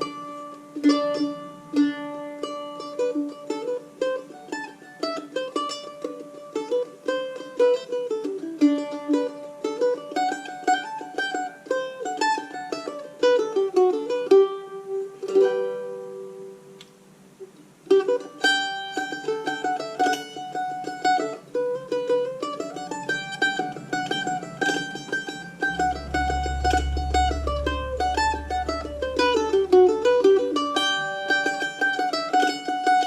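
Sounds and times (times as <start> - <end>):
mandolin picking lively tune: 0.0 - 33.0
low steady tone: 21.5 - 32.0.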